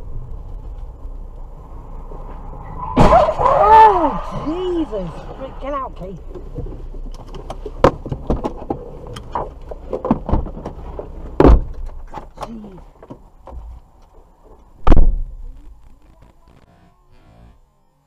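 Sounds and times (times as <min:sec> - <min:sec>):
car door clicks and rattles: 0:06.3 - 0:15.2
car door slamming: 0:11.4 - 0:12.6.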